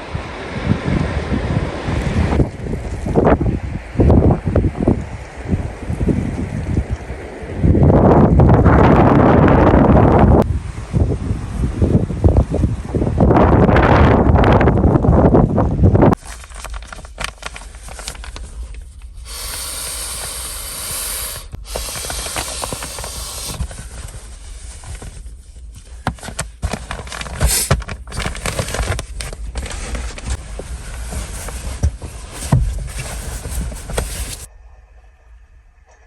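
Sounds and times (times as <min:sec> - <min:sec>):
wind buffeting microphone: 0:00.0 - 0:16.2
small clicks and rustles: 0:16.2 - 0:19.1, 0:21.7 - 0:34.5
steady high hiss: 0:19.1 - 0:23.7.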